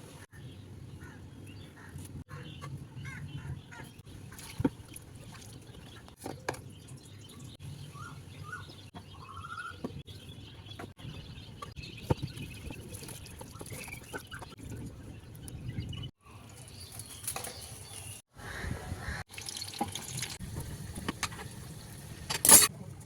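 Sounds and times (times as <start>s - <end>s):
birds chirping: 0.0s - 19.2s.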